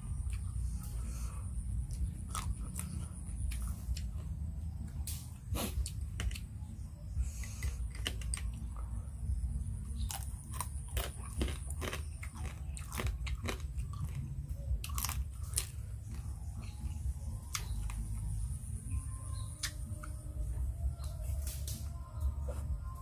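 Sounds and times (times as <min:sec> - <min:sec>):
person chewing crunchy food: 0:00.0 - 0:18.7.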